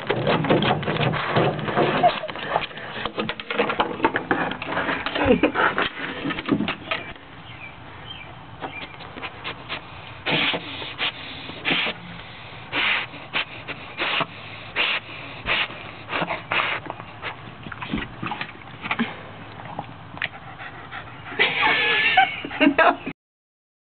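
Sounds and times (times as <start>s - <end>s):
dog sniffing and snorting: 9.0s - 17.6s.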